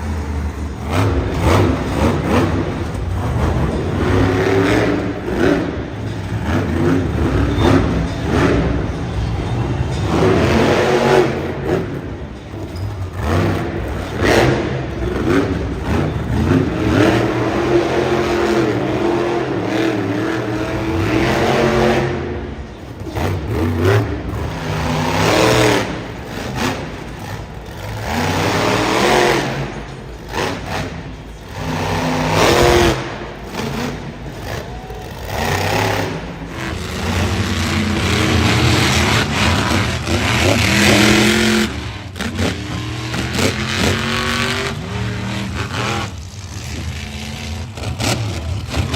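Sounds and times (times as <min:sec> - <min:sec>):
monster truck engines revving: 0:00.0 - 0:48.9.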